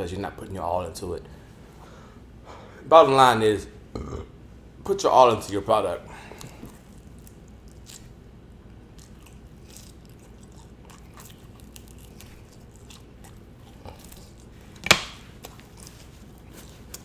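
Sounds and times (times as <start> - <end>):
person chewing food: 6.1 - 17.0.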